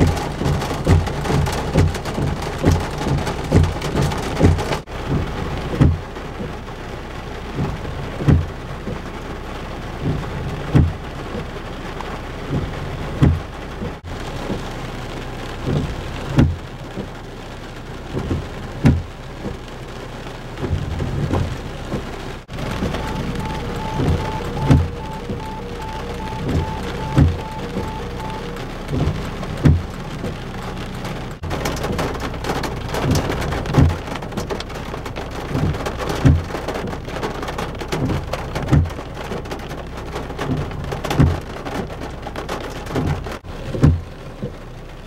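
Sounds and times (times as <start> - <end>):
steady rain: 0.0 - 45.0
steady musical tones: 22.6 - 29.0.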